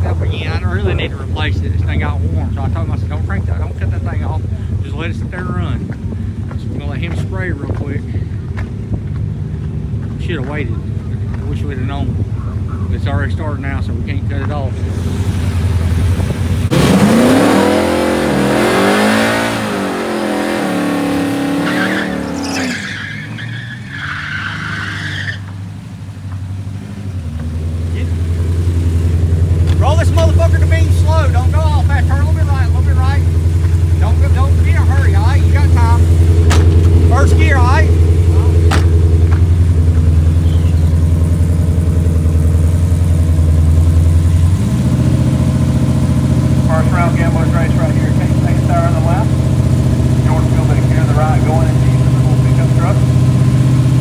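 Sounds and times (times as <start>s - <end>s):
car engine revving and idling: 0.0s - 54.0s
tyres squealing: 14.7s - 42.8s.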